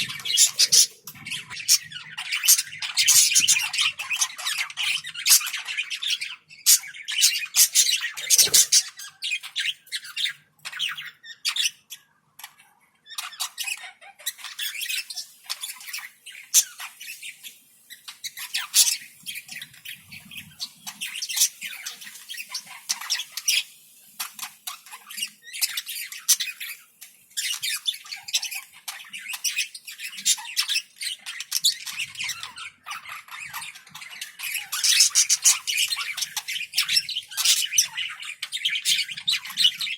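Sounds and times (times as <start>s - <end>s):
budgerigars chattering: 0.0s - 26.8s, 27.4s - 39.9s.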